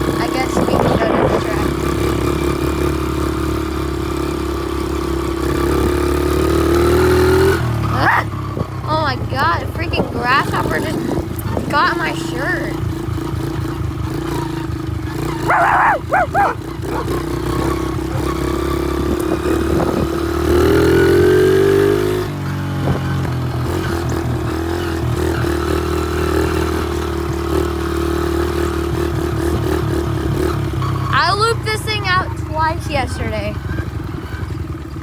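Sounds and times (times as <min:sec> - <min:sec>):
pit bike engine revving: 0:00.0 - 0:35.0
high-pitched yelps: 0:08.0 - 0:08.3, 0:15.3 - 0:18.4.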